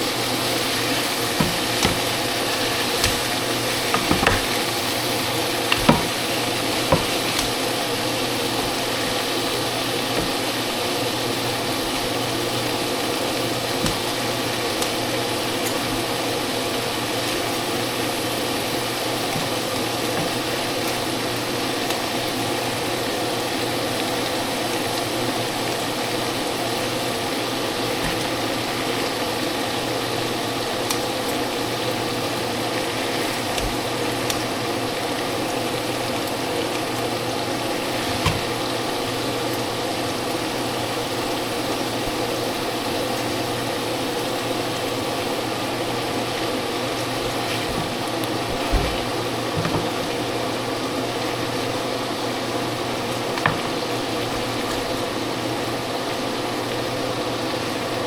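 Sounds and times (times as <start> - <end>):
food sizzling in a frying pan: 0.0 - 58.0
utensil clicking against pan: 0.8 - 5.0, 5.6 - 7.8.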